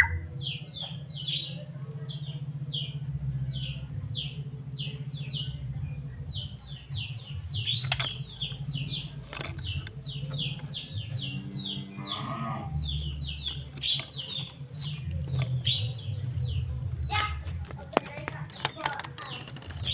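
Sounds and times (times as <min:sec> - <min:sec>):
bird chirping: 0:00.0 - 0:19.9
low bleating call: 0:12.0 - 0:12.8.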